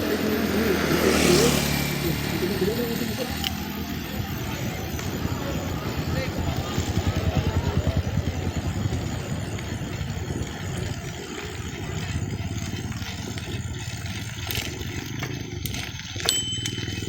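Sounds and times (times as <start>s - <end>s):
engine running with rapid pulsing: 0.0s - 17.0s.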